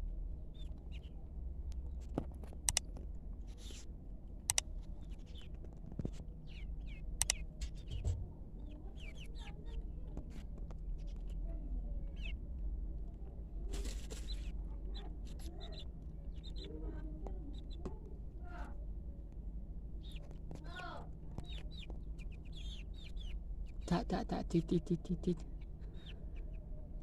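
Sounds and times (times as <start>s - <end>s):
steady low hum: 0.0s - 27.0s
sharp clicks: 2.6s - 3.0s, 4.4s - 4.7s, 7.2s - 7.4s
chickens calling: 21.3s - 26.7s.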